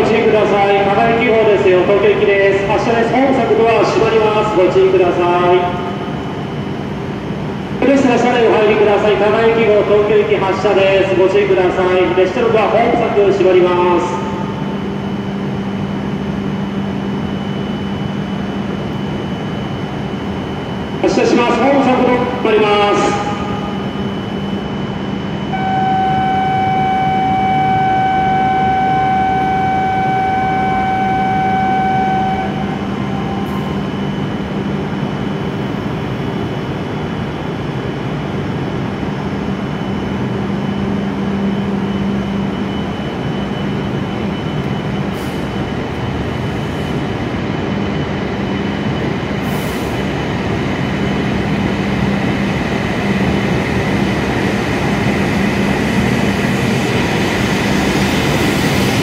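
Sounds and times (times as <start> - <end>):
train equipment humming: 0.0 - 59.0
electronic warning tone: 14.1 - 36.4, 39.4 - 59.0
train pulling away: 16.0 - 37.5, 39.5 - 59.0.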